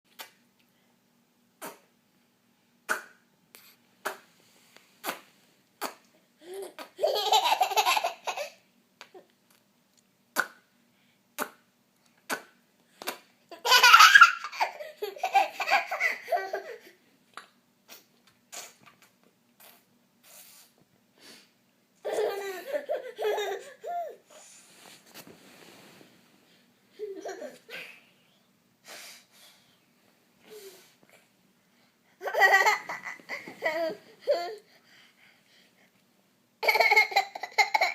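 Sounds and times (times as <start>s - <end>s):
child laughing: 6.4s - 8.6s, 13.5s - 16.9s, 22.0s - 24.2s, 27.0s - 28.0s, 32.2s - 34.6s, 36.6s - 37.9s.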